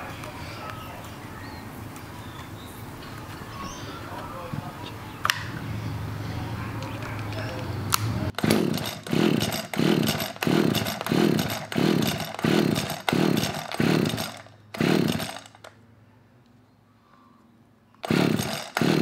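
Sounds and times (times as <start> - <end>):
recoil starter cord pulls: 7.0 - 15.8, 18.0 - 19.0.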